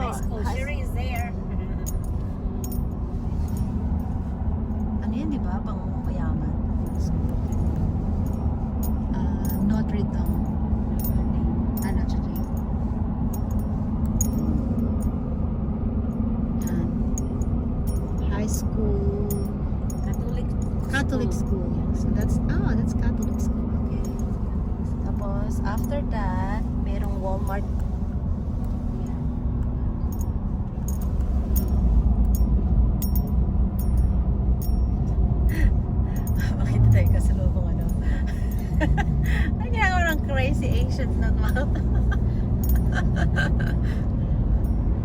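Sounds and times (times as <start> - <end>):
road and engine rumble: 0.0 - 45.0
light clicks and rattles: 16.6 - 43.9.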